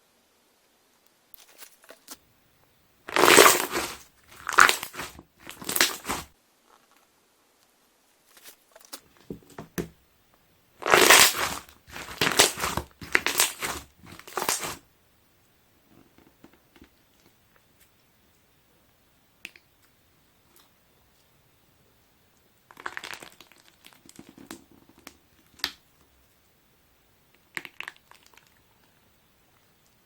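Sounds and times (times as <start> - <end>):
slime squeezed by hand: 3.1 - 6.3, 10.8 - 14.8.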